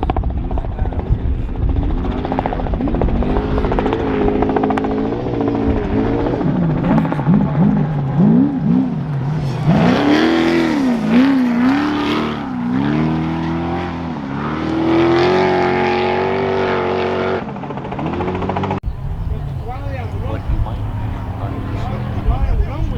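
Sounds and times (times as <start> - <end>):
rush of noise: 0.0 - 14.5
race truck engine revving: 1.7 - 22.9.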